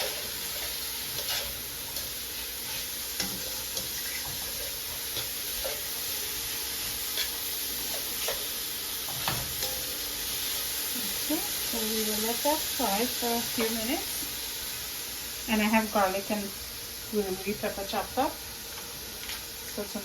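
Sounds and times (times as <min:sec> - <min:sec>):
utensil scraping a pan: 0:00.0 - 0:08.4
vegetables sizzling in a pan: 0:00.0 - 0:20.0.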